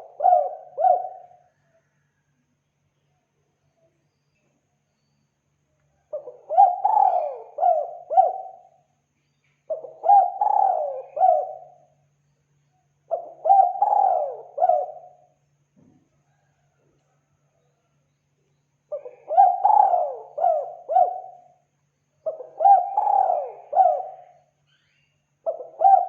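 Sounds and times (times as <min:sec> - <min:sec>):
dove cooing: 0:00.0 - 0:01.8, 0:06.1 - 0:08.8, 0:09.7 - 0:11.9, 0:13.1 - 0:15.4, 0:18.9 - 0:21.6, 0:22.2 - 0:24.5, 0:25.4 - 0:26.0.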